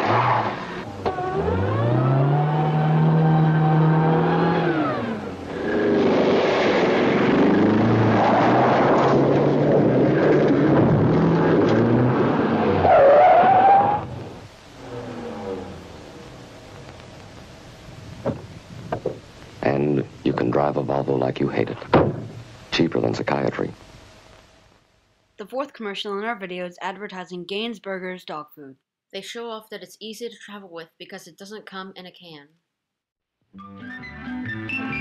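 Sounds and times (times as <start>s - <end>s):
car engine revving: 0.0s - 17.3s
tyre squeal: 12.8s - 14.2s.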